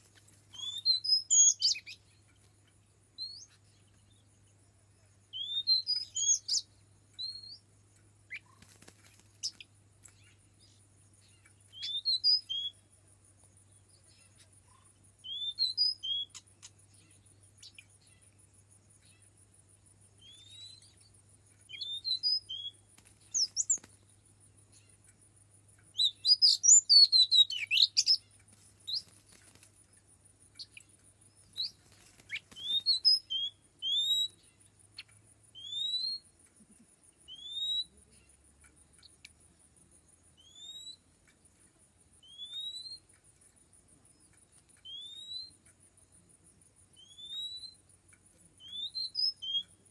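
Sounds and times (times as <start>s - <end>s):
faint high-pitched pulsing buzz: 0.0s - 49.9s
magpie-robin whistles and song: 0.5s - 2.0s, 3.2s - 3.6s, 5.3s - 7.6s, 11.7s - 12.8s, 15.2s - 16.7s, 20.2s - 20.9s, 21.7s - 23.8s, 26.0s - 28.2s, 31.6s - 34.4s, 35.6s - 36.3s, 37.3s - 37.9s, 40.4s - 41.0s, 42.2s - 43.0s, 44.8s - 45.6s, 47.0s - 47.8s, 48.6s - 49.8s.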